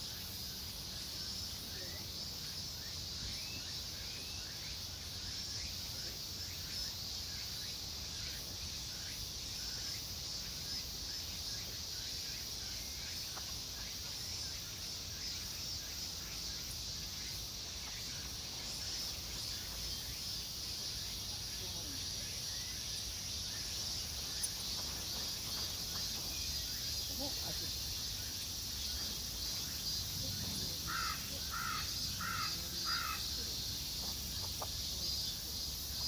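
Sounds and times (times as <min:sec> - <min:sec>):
insects shrilling: 0:16.5 - 0:36.0.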